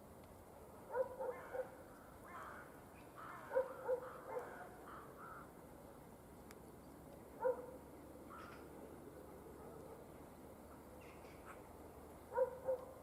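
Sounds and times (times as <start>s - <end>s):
distant dog barking: 0.9s - 1.8s, 3.4s - 4.8s, 7.4s - 7.8s, 9.2s - 10.2s, 12.3s - 13.0s.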